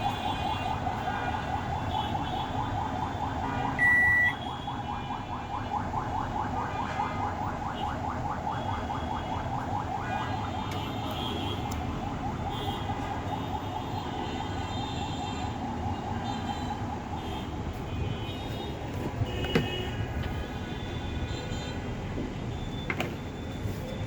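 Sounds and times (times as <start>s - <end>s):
short electronic beep: 3.8s - 4.4s.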